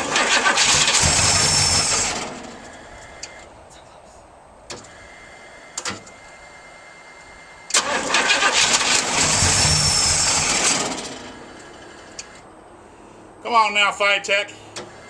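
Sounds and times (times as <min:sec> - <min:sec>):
starter cranking engine: 0:00.0 - 0:03.5, 0:07.7 - 0:12.4.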